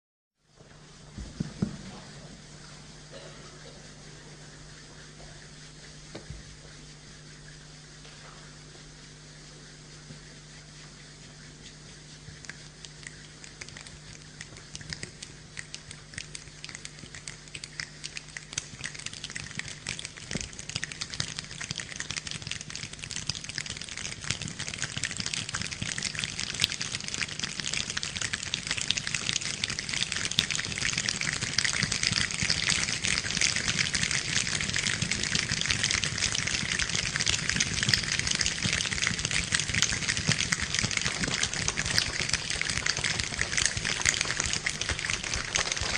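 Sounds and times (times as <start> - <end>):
rain falling: 34.3 - 45.9.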